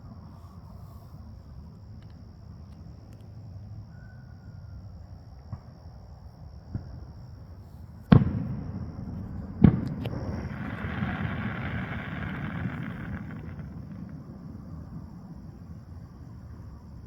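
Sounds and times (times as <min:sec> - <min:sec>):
faint firework pops: 0:05.5 - 0:05.8, 0:06.7 - 0:16.7
loud firework booms echoing: 0:08.0 - 0:17.0.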